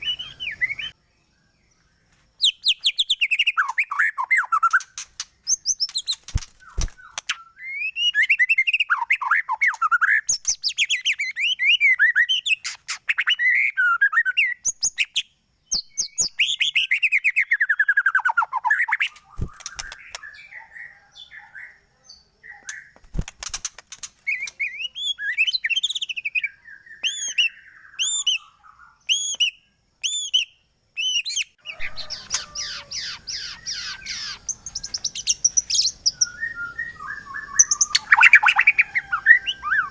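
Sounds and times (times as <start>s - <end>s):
bird whistles and trills: 0.0s - 1.0s, 2.4s - 21.8s, 22.4s - 39.9s
repeated sharp bird notes: 0.0s - 1.0s, 2.4s - 39.9s
harsh noisy bird chatter: 3.3s - 7.6s, 18.1s - 21.6s, 22.5s - 25.4s, 31.6s - 36.1s.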